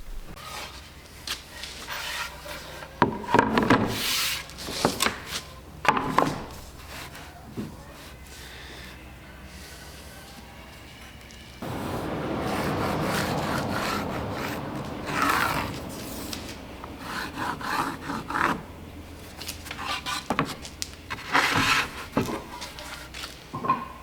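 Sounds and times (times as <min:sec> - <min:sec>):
wood rubbing and scraping: 0:11.6 - 0:23.4.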